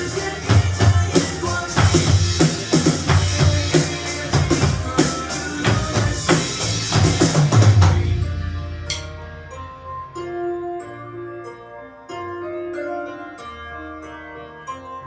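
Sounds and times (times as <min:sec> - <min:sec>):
drum kit playing: 0:00.0 - 0:10.0
pop song backing track: 0:00.0 - 0:10.7.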